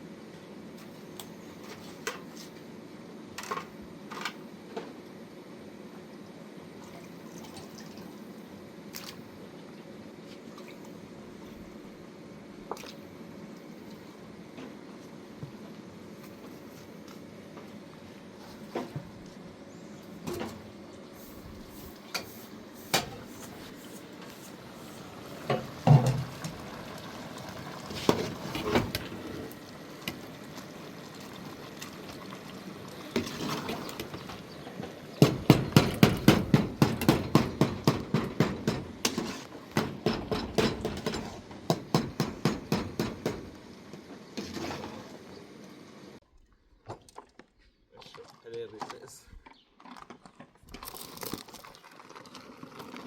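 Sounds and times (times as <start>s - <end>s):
knocks and clatter: 25.5s - 26.7s, 33.2s - 43.6s.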